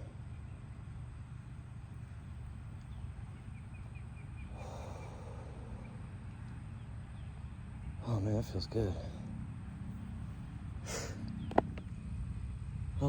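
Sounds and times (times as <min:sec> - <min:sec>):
bird chirping: 0:00.0 - 0:09.2
low outdoor rumble: 0:00.0 - 0:13.0.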